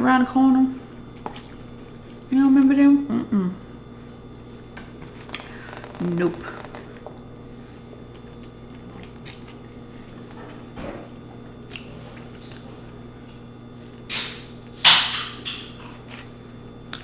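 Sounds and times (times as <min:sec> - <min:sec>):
soda can cracking open: 0:14.1 - 0:15.6.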